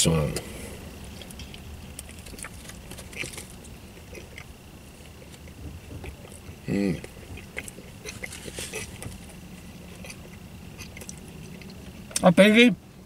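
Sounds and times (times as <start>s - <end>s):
man chewing: 0.4s - 12.2s
hummed vocal sound: 5.9s - 9.0s.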